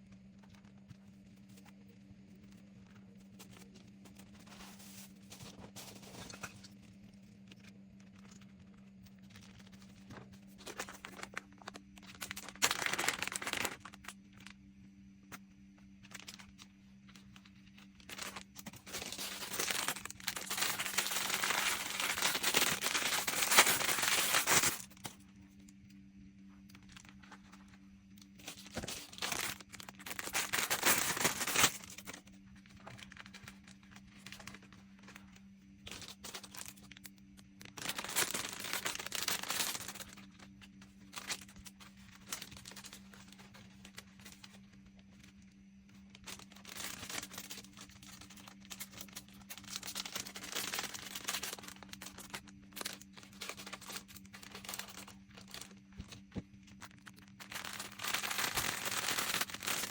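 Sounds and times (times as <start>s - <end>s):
packaging crinkling: 9.3s - 14.5s, 16.0s - 25.1s, 28.4s - 35.2s, 35.9s - 40.4s, 41.1s - 44.7s, 46.1s - 59.9s.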